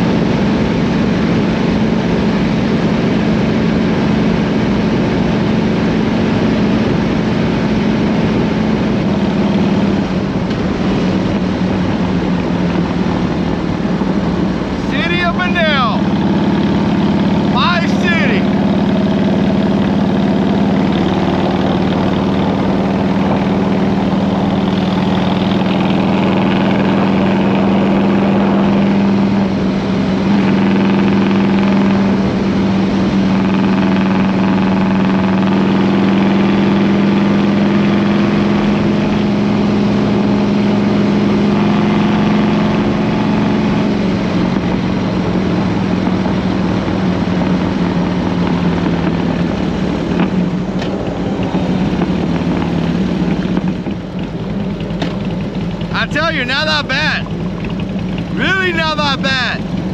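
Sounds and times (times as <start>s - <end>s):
motorcycle engine and exhaust: 0.0s - 59.9s.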